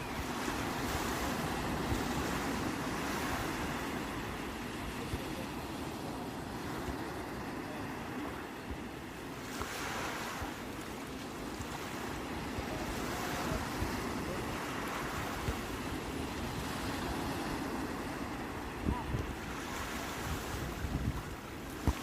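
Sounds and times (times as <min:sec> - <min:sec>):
sea waves breaking on shore: 0:00.0 - 0:22.0
wind rumbling on microphone: 0:11.4 - 0:22.0.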